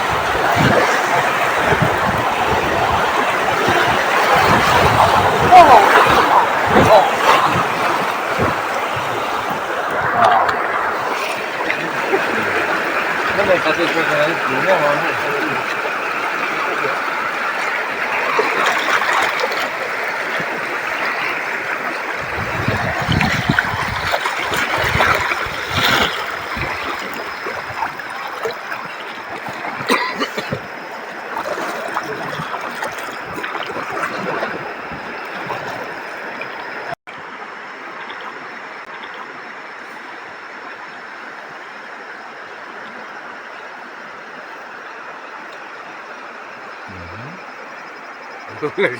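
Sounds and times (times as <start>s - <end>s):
river water rushing and splashing: 0.0s - 46.8s.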